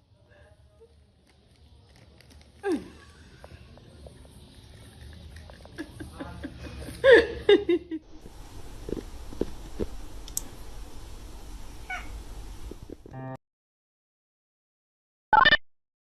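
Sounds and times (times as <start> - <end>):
cat meowing: 11.8 - 12.2.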